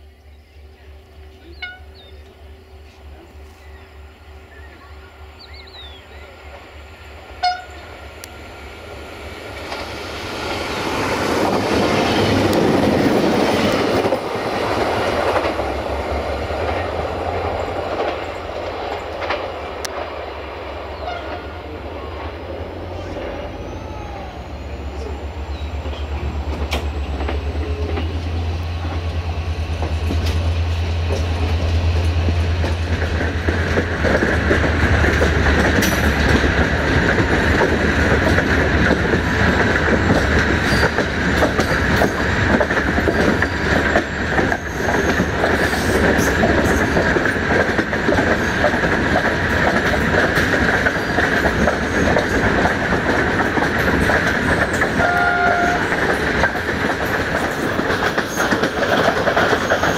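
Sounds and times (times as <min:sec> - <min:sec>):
diesel locomotive engine throbbing: 0:00.0 - 0:59.9
carriage wheels clacking on rails: 0:25.8 - 0:59.9.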